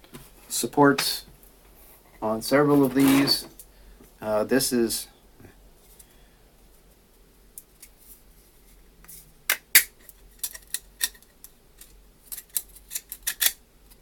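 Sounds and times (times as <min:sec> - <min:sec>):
plastic parts clicking together: 0:09.5 - 0:13.6.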